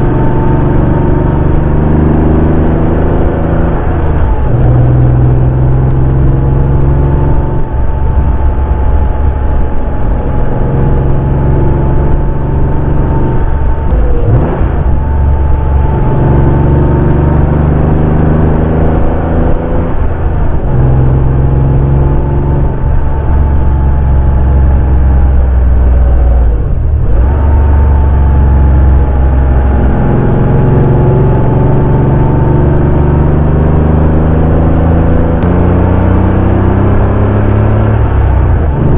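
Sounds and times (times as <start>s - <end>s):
car engine pulling: 0.0s - 38.9s.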